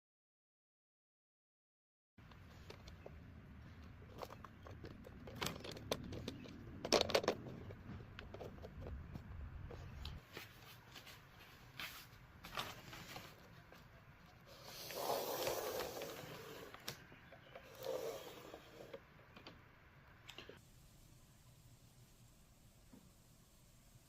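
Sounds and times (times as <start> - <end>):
veneer sheets rustling: 7.7 - 18.7.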